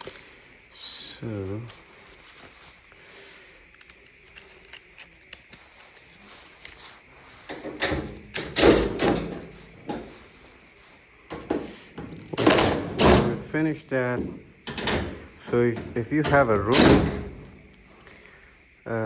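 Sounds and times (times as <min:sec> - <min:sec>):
hands tapping metal cabinet: 0:07.5 - 0:10.2, 0:11.3 - 0:13.6, 0:14.2 - 0:17.7
metal scraping and rattling: 0:07.5 - 0:10.3, 0:11.3 - 0:17.8.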